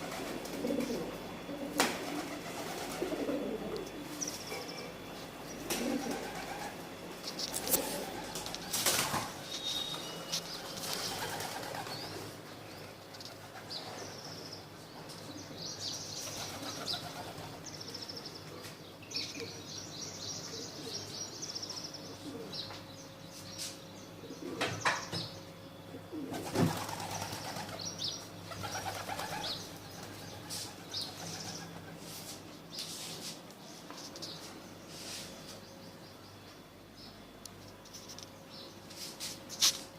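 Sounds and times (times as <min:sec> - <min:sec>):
birds flapping wings: 0:00.0 - 0:01.0, 0:01.8 - 0:03.4, 0:05.6 - 0:06.8, 0:07.6 - 0:09.5, 0:10.4 - 0:12.3, 0:26.3 - 0:27.9, 0:28.5 - 0:32.3
high bird chirping: 0:09.4 - 0:12.1.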